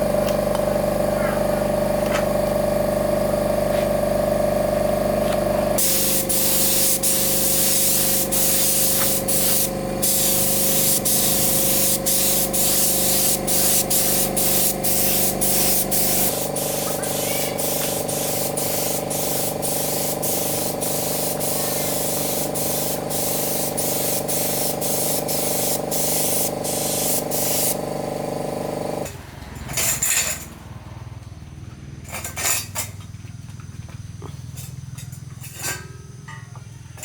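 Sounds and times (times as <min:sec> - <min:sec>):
machine humming: 0:00.0 - 0:24.0
spray gun hissing in pulses: 0:05.8 - 0:28.2.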